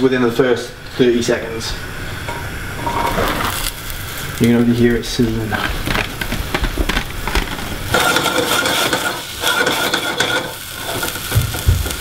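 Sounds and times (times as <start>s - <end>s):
vegetables sizzling in a pan: 0.9s - 12.0s
metal scraping: 2.2s - 3.7s
pans and lid clinking: 7.9s - 12.0s.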